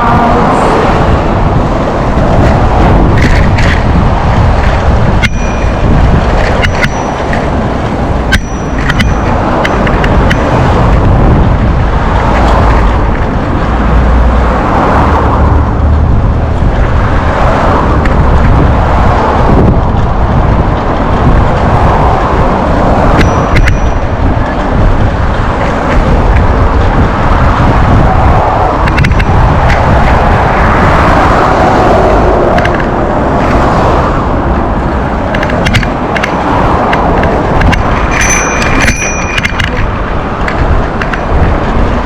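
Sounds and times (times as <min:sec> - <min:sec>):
wind buffeting microphone: 0:00.0 - 0:42.0
sharp clicks or rattles: 0:02.3 - 0:11.2, 0:28.8 - 0:30.3, 0:35.1 - 0:41.8.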